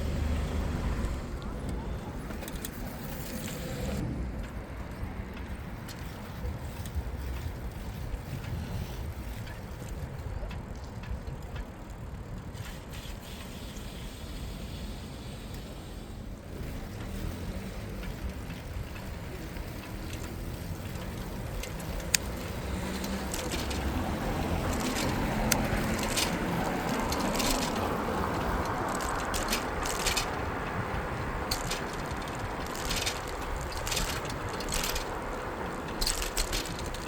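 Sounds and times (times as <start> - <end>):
wind noise: 0.0 - 12.8, 18.1 - 37.0
bicycle tyre noise: 0.0 - 37.0
sharp clicks and rattles: 16.6 - 37.0.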